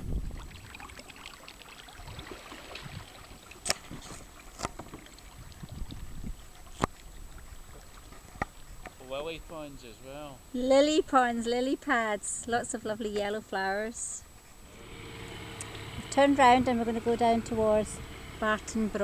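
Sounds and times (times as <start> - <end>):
paddle swishing through water: 0.0 - 9.1, 14.2 - 19.0.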